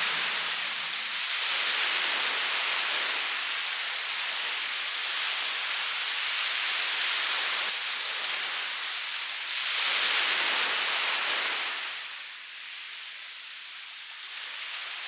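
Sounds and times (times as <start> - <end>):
steady rushing noise: 0.0 - 3.6.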